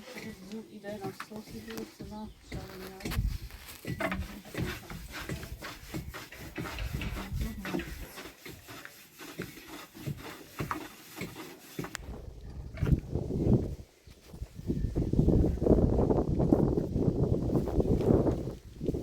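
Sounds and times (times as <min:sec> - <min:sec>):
hand tools scraping and knocking: 0:00.0 - 0:12.1.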